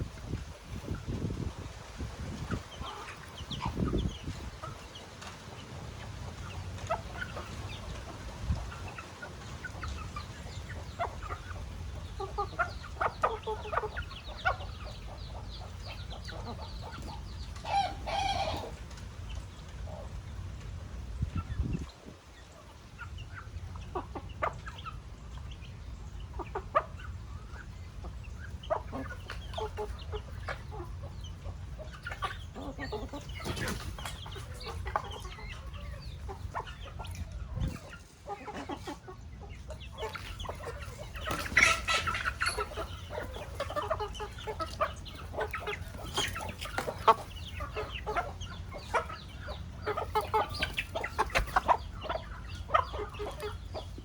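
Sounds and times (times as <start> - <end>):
chickens clucking: 0.0 - 54.0
chickens squawking: 0.0 - 54.0.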